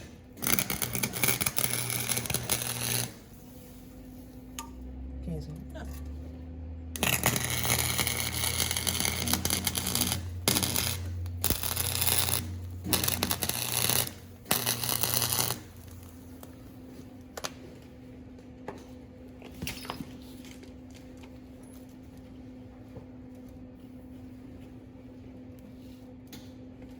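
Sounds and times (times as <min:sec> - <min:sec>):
welding arc crackling: 0:00.0 - 0:03.5, 0:07.0 - 0:16.5
steady low hum: 0:00.0 - 0:26.9.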